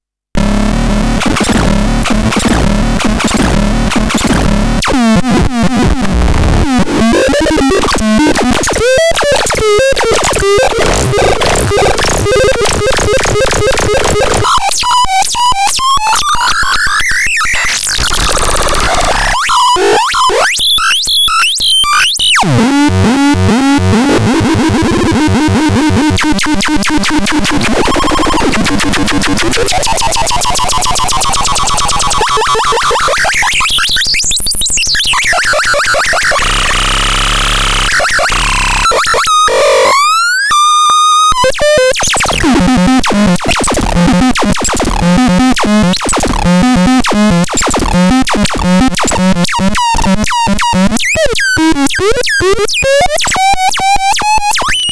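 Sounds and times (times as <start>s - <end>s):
repeating short synth notes: 0.4s - 6.1s
synthesizer buzzy pulsing tones: 0.4s - 16.5s, 17.3s - 54.6s
synthesizer chirping glides: 0.4s - 43.2s.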